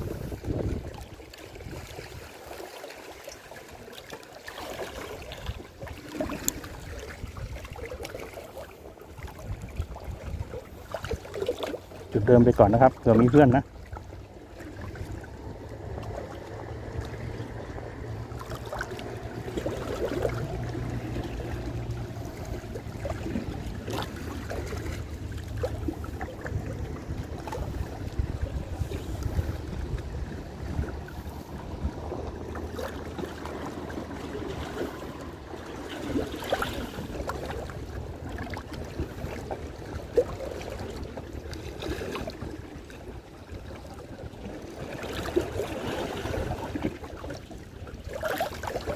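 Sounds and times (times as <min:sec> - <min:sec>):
seawater lapping: 0:00.0 - 0:48.9
low steady hum: 0:11.9 - 0:48.8.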